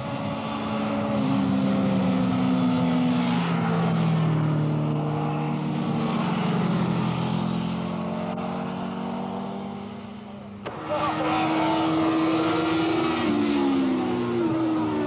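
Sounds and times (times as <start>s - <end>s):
motorcycle engines passing: 0.0s - 15.0s.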